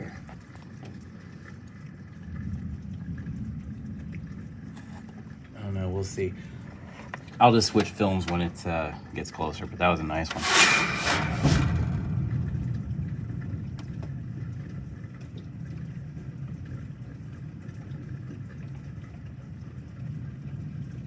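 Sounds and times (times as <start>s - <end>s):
low thunder rumble: 1.8s - 7.4s, 11.6s - 18.6s.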